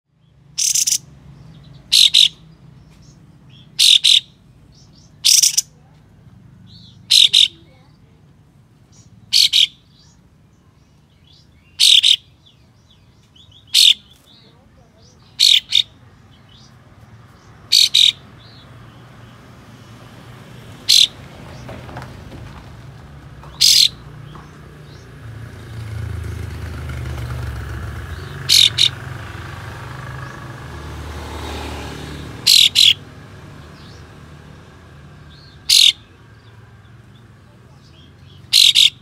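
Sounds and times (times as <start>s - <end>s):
bird giving sharp calls: 0.5s - 5.8s, 6.7s - 7.8s, 8.9s - 10.2s, 11.2s - 12.6s, 13.4s - 16.8s, 17.4s - 18.7s, 20.7s - 21.6s, 23.5s - 24.1s, 26.1s - 30.6s, 32.1s - 33.1s, 35.3s - 36.2s, 37.9s - 39.0s.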